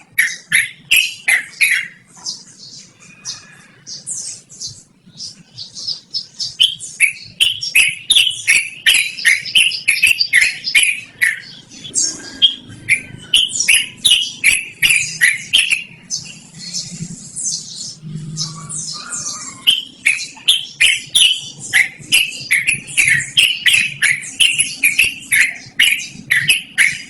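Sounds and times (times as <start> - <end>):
bird chattering song: 0.0 - 27.0
soft high bird twittering: 0.0 - 27.0.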